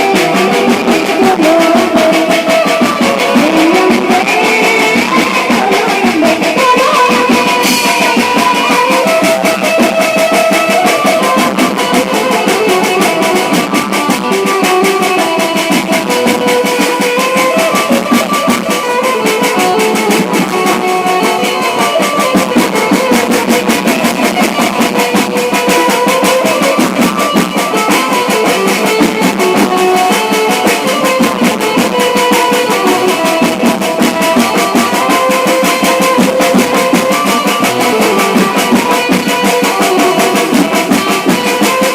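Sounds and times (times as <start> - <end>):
loud music over a sound system: 35.2 - 41.9.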